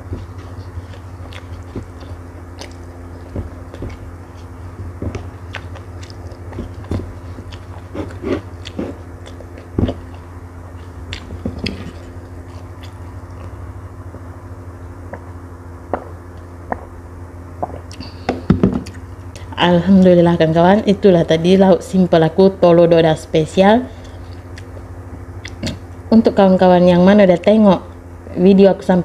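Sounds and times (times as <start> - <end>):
chewing rice: 0.0 - 14.3, 24.0 - 26.0
steady low hum: 0.0 - 29.0.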